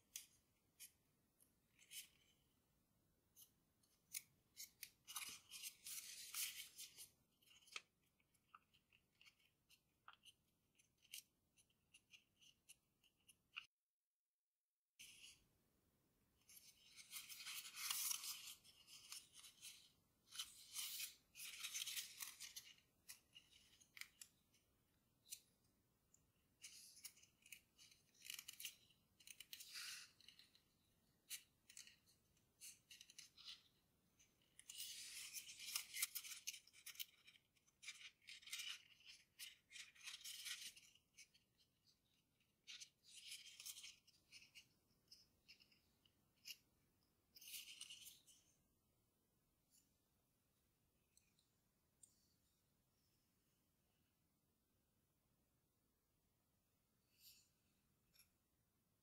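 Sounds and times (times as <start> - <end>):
paper rustling and crinkling: 16.5 - 24.3
crisp paper clicks: 26.6 - 30.6.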